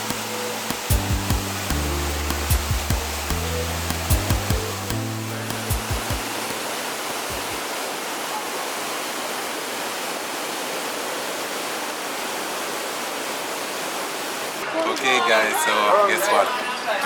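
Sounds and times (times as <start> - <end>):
waterfall rushing: 0.0 - 14.7
short low thumps: 0.9 - 6.7.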